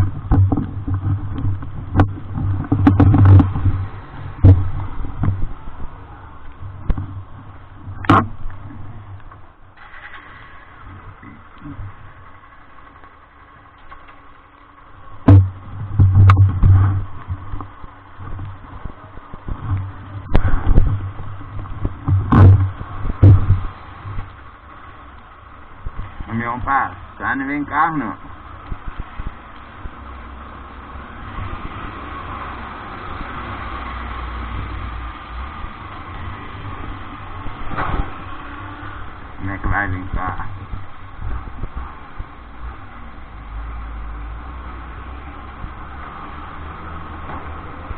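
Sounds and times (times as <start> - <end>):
loud low engine rumble: 0.0 - 47.9
rain on wet road: 0.0 - 47.9
vehicle engine hum: 0.0 - 47.9
sharp knock: 15.2 - 16.9.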